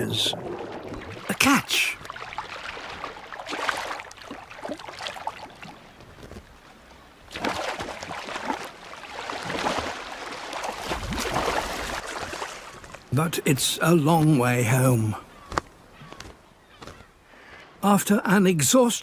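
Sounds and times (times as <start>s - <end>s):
water splashing and gurgling: 0.0s - 15.2s.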